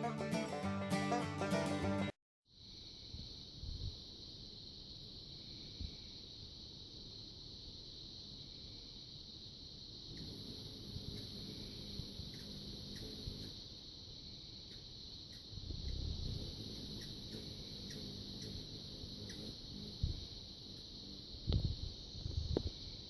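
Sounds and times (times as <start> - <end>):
high-pitched insect chorus: 2.5 - 23.0
faint ticks: 10.2 - 13.6, 21.5 - 22.9.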